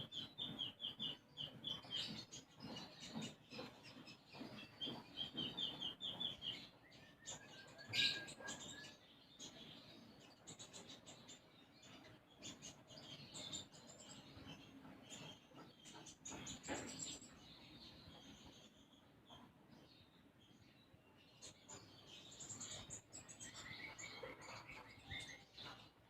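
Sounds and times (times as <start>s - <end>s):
songbird chirping and whistling: 3.6s - 9.1s.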